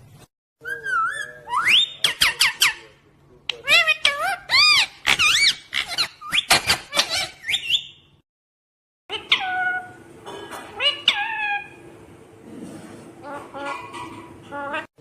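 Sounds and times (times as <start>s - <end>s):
parrot squeaky calls: 0.6s - 2.9s, 3.5s - 8.1s, 9.1s - 10.0s, 10.7s - 11.8s.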